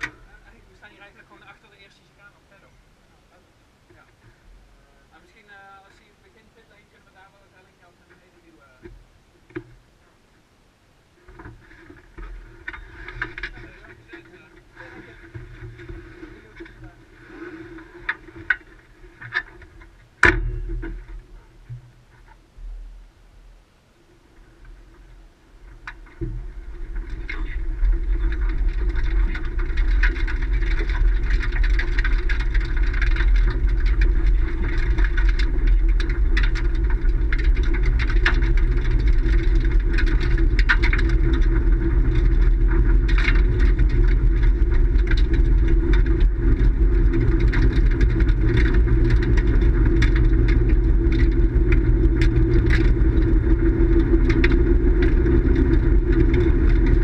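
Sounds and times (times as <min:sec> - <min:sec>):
vehicle engine running: 0:25.6 - 0:57.0.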